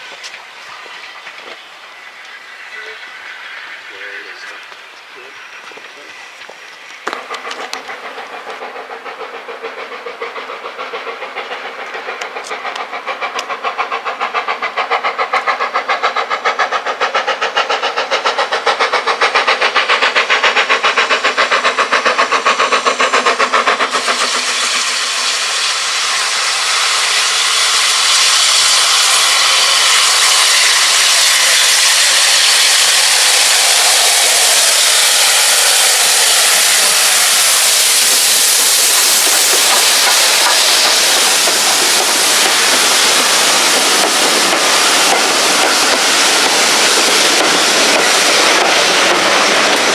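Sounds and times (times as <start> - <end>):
loud hiss of steam: 0.0 - 49.9
steam locomotive chuffing: 0.0 - 49.9.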